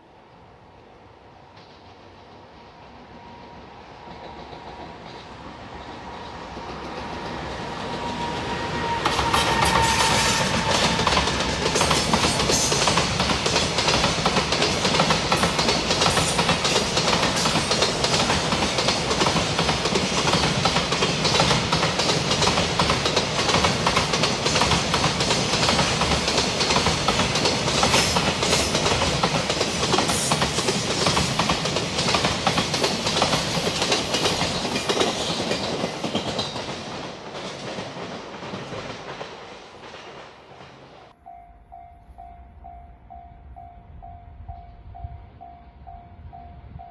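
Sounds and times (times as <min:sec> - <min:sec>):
wheels clacking over rail joints: 0:06.5 - 0:41.0.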